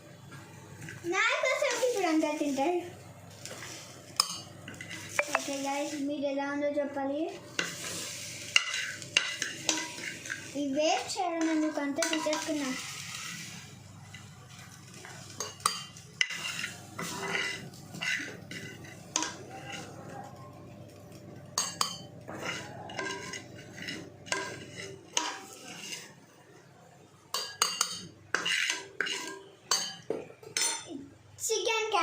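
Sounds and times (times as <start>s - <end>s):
metal spoon scraping a pan: 3.4s - 6.0s, 7.5s - 20.3s, 21.1s - 26.3s, 27.3s - 30.9s.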